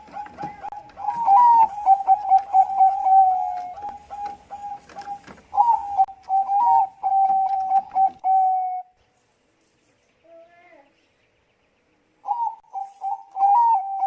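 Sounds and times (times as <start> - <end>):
dove cooing: 0.0 - 9.0, 12.2 - 14.0.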